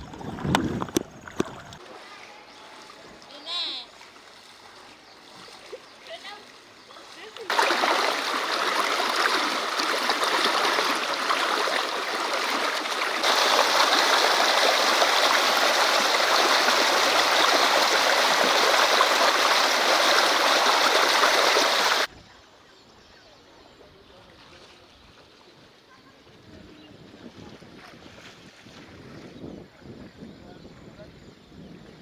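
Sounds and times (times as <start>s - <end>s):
floodwater rushing: 6.4s - 22.1s.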